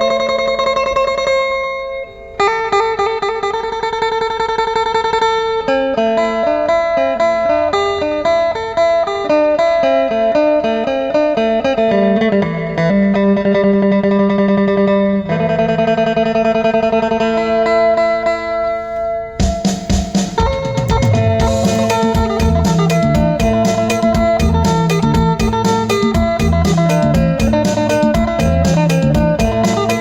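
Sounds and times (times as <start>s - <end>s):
electric guitar fast melody: 19.9s - 30.0s.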